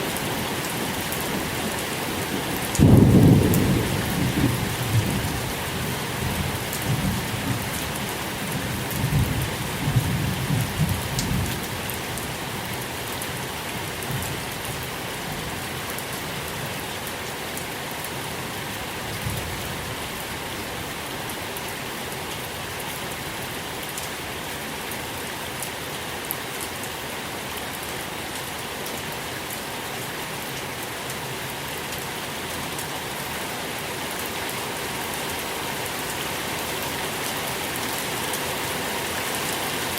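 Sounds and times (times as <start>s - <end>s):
steady rain falling: 0.0s - 39.9s
low rumble of thunder: 2.7s - 5.6s, 8.6s - 11.6s.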